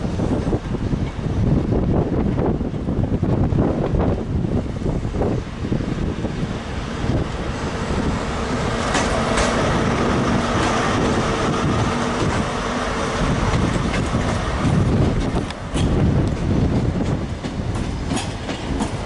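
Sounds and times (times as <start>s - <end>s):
diesel train engine: 0.0s - 19.0s
train wheels rumbling on track: 0.0s - 19.0s
wheels clicking over rail joints: 8.7s - 9.8s, 11.7s - 19.0s.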